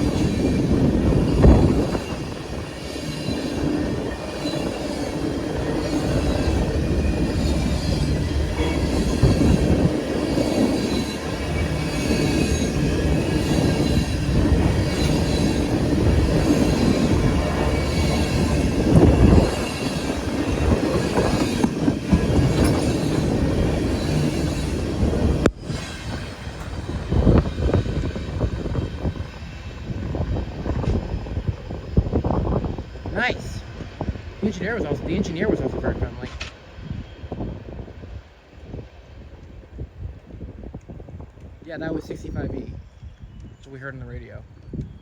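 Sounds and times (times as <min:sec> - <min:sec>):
steel wheels squealing: 0:00.0 - 0:32.4
freight train cars rolling: 0:00.0 - 0:45.0.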